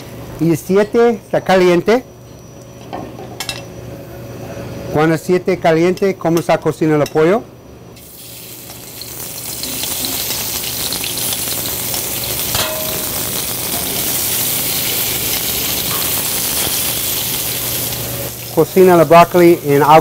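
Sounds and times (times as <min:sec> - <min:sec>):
chicken sizzling in oil: 0:08.0 - 0:20.0.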